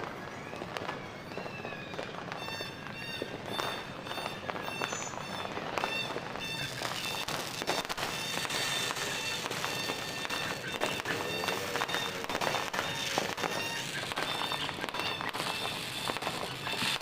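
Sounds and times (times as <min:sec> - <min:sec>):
fireworks popping and banging: 0:00.0 - 0:17.0
steady high tones: 0:06.6 - 0:17.0.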